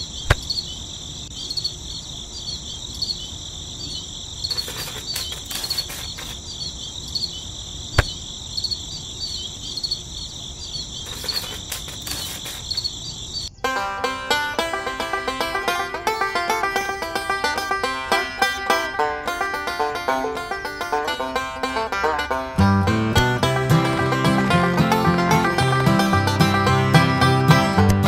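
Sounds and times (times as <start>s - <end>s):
crickets chirping: 0.0s - 27.8s
sharp clicks: 0.2s - 0.6s, 4.5s - 6.4s, 11.0s - 12.9s.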